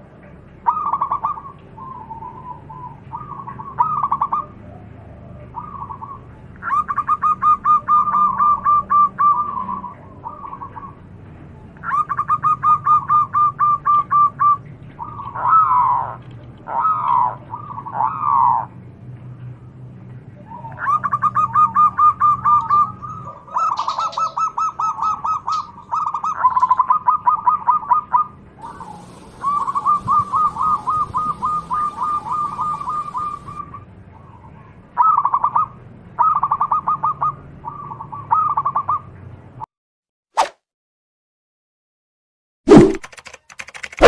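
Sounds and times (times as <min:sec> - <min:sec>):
bird singing fast trills: 0:20.5 - 0:33.8.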